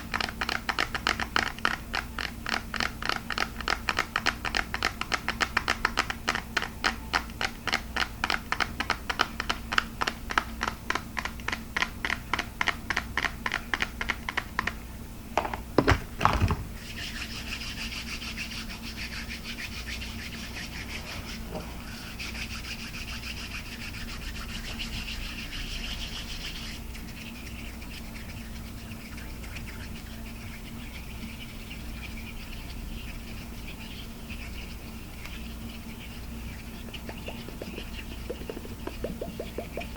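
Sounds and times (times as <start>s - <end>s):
fingertips tapping on plastic: 0.0s - 14.8s, 36.8s - 39.9s
scratchy rubbing on plastic: 16.8s - 39.9s.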